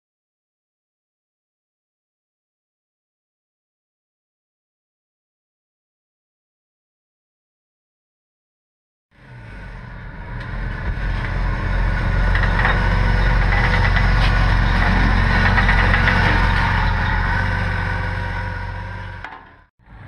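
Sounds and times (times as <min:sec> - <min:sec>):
off-road vehicle engine idling: 0:09.2 - 0:20.0.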